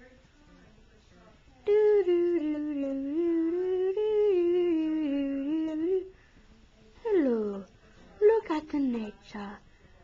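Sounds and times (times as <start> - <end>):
person humming a slow tune: 1.7 - 6.1.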